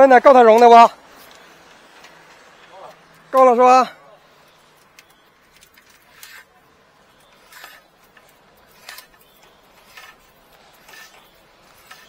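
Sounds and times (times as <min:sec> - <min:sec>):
faint sharp clicks: 0:04.7 - 0:05.9.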